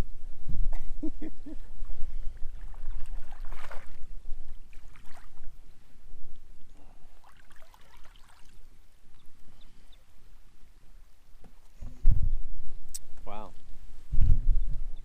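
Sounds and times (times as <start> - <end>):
wind rumble on microphone: 0.0 - 7.2, 8.5 - 15.0
water splashing and trickling: 1.8 - 8.8.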